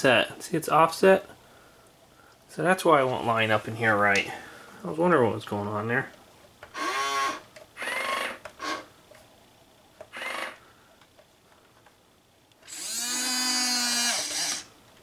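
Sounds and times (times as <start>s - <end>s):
small electric motors whining: 6.7s - 8.9s, 10.1s - 10.6s, 12.6s - 14.7s.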